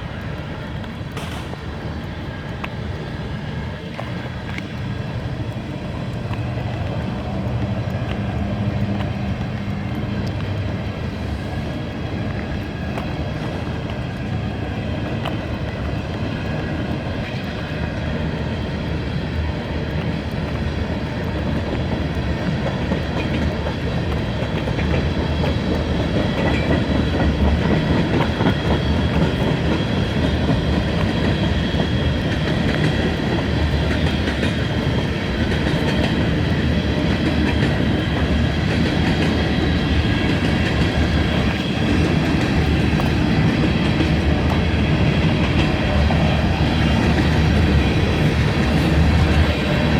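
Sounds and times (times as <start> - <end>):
freight train wheels clattering: 0.0 - 49.9.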